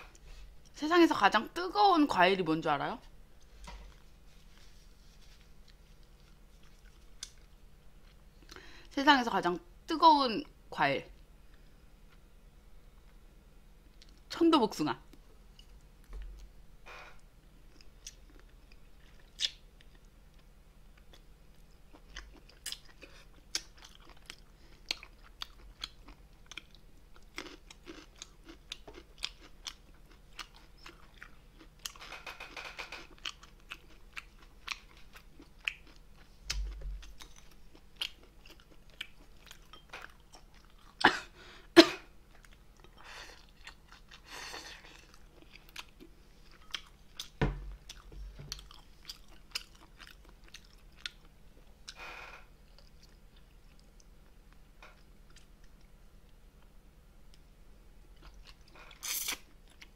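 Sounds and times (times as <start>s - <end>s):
chewing and crunching food: 3.4s - 8.7s, 17.6s - 41.1s, 42.3s - 52.0s, 52.6s - 56.7s, 58.1s - 59.9s.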